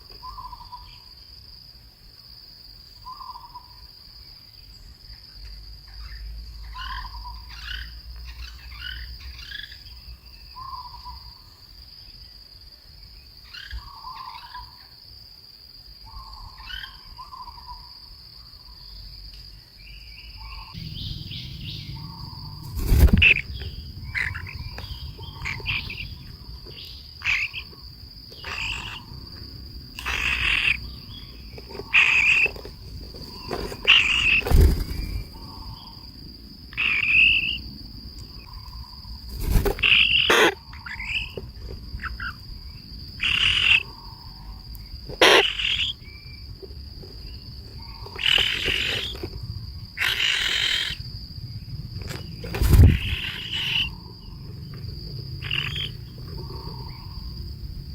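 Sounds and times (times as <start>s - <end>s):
harsh bird calls: 20.2s - 29.2s, 29.9s - 36.1s, 36.7s - 37.6s, 38.3s - 41.4s, 43.2s - 46.4s, 47.7s - 49.4s, 50.0s - 51.0s, 52.2s - 54.5s, 55.4s - 57.3s
high-pitched insect drone: 20.4s - 57.9s.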